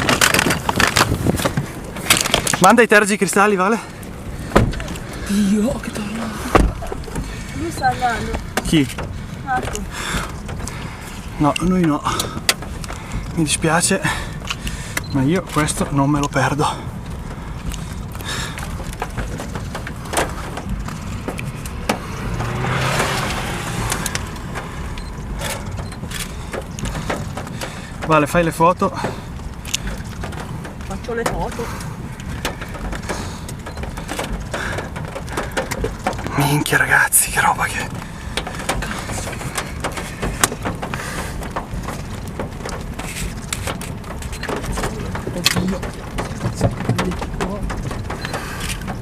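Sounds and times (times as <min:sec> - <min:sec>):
wind noise: 0:00.0 - 0:37.1
hailstones hitting car body: 0:00.0 - 0:49.0
low vehicle rumble: 0:00.0 - 0:49.0.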